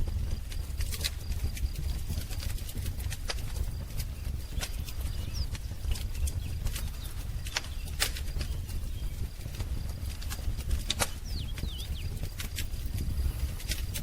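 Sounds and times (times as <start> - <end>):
wood fire crackling and popping: 0.0 - 14.0
faint bird chirp: 3.5 - 14.0.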